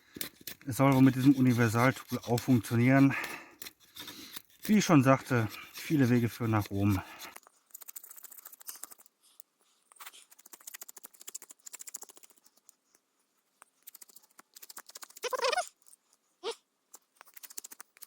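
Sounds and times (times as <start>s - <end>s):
blade scraping wood: 0.0s - 7.9s.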